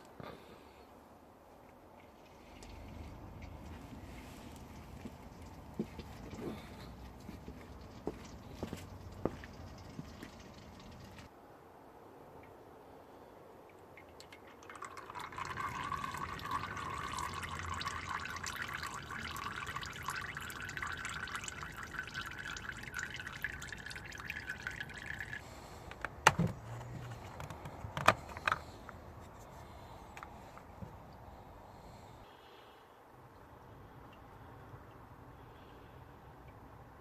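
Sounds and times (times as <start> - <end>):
oil pouring in a stream: 1.9 - 11.3, 13.7 - 29.0.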